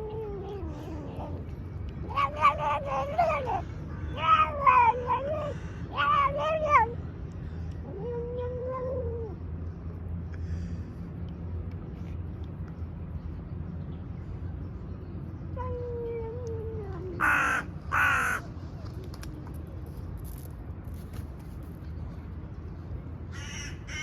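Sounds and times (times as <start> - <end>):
low background hum: 0.0 - 24.0
crow cawing: 17.2 - 18.4, 23.4 - 24.0.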